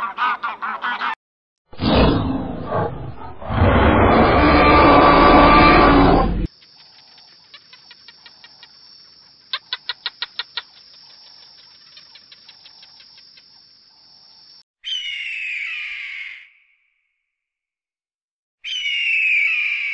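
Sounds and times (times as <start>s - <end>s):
deep dinosaur roar: 1.8s - 6.5s
rapid chirping: 6.5s - 13.7s.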